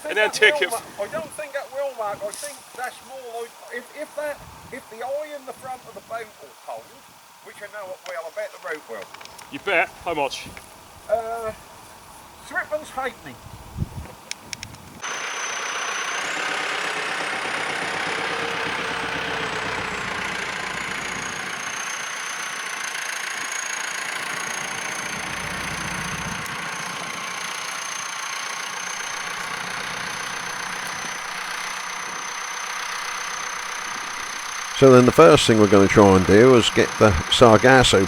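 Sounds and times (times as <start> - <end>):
engine idling: 15.0 - 38.0
thin high whine: 30.1 - 38.0.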